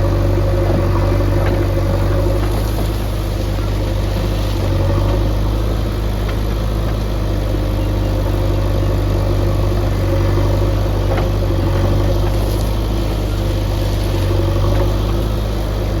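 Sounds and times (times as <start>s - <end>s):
faint engine knocks: 0.0s - 16.0s
heavy diesel engine running: 0.0s - 16.0s.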